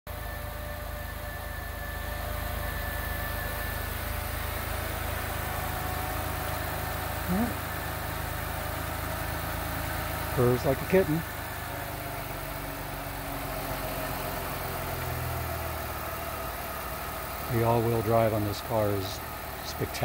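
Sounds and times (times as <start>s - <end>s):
car engine idling: 0.1s - 20.0s.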